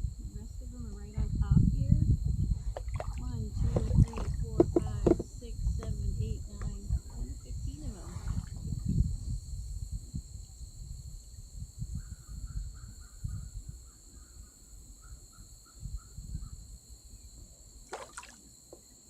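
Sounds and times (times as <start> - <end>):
low rumbles: 0.0 - 10.4
crickets droning: 0.0 - 19.0
quick insect chirps: 8.2 - 19.0.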